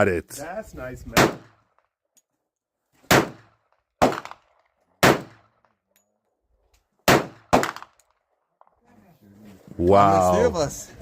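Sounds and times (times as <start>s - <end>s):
pistol shots: 1.2s - 1.8s, 3.0s - 5.7s, 7.0s - 8.1s.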